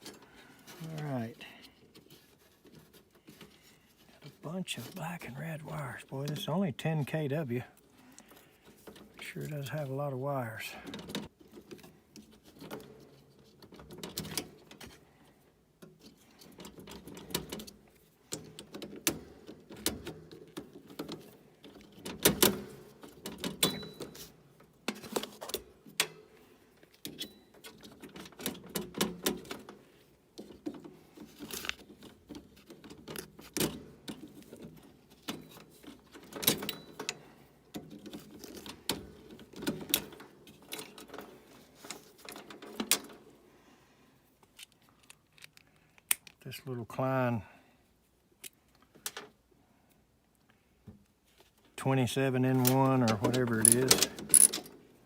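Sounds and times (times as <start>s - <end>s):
hand tools clicking and rattling: 30.4s - 43.2s, 52.6s - 54.8s.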